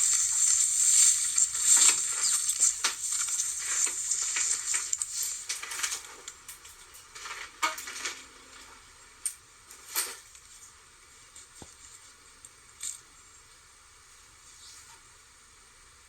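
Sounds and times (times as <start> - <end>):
small objects clicking and clinking: 0.0 - 10.5
rustling hiss: 0.0 - 16.0.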